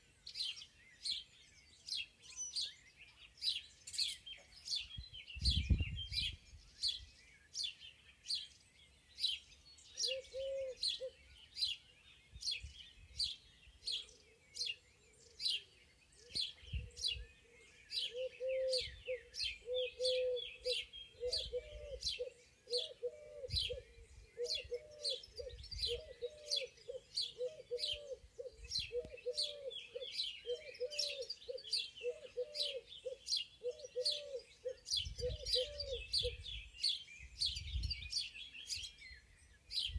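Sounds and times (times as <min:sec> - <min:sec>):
songbirds chirping: 0:00.0 - 0:39.9
lower repeated bird call: 0:09.9 - 0:39.9.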